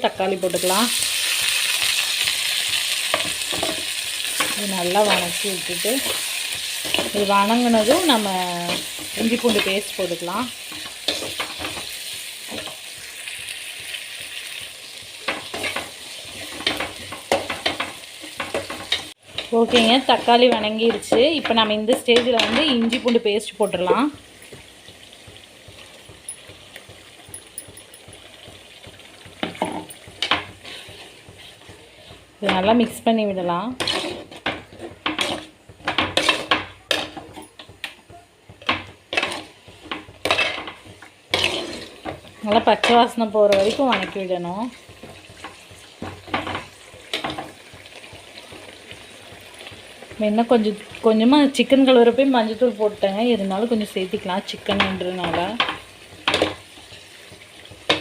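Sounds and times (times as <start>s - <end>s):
tomatoes and onions sizzling in oil: 0.0s - 58.0s
spoon scraping cooking pan: 0.5s - 52.6s
stirring scrapes: 30.0s - 32.5s, 33.7s - 37.7s, 39.1s - 42.4s, 43.4s - 47.6s.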